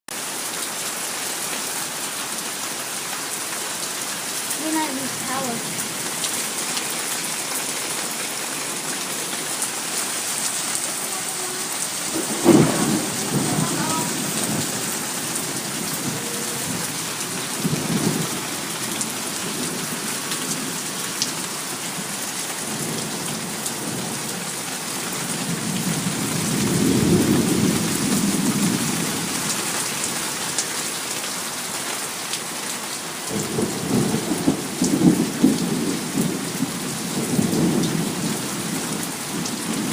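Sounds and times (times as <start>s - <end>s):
heavy rain falling: 0.1s - 39.9s
rolling thunder rumbles: 8.7s - 20.8s, 25.4s - 29.5s, 33.3s - 39.9s
thunder crack: 12.0s - 17.0s.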